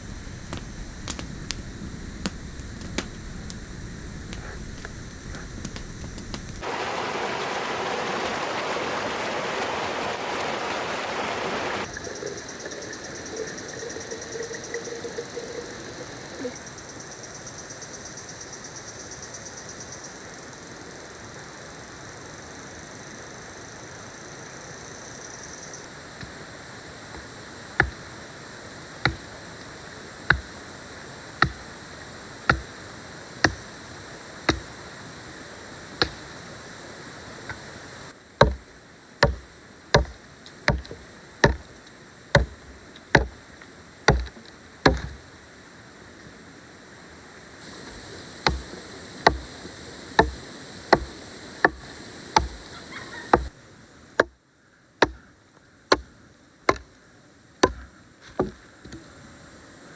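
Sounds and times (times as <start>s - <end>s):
background hiss: 0.0s - 59.9s
blade chopping wood: 27.2s - 28.1s, 29.1s - 29.4s, 30.3s - 30.5s, 31.4s - 31.7s, 32.5s - 32.8s, 33.4s - 33.7s, 34.5s - 34.8s, 36.0s - 36.3s, 38.4s - 41.8s, 42.4s - 43.4s, 44.1s - 45.2s, 47.9s - 49.6s, 50.2s - 52.7s, 53.3s - 53.5s, 55.0s - 55.2s, 56.7s - 56.9s, 57.6s - 59.1s.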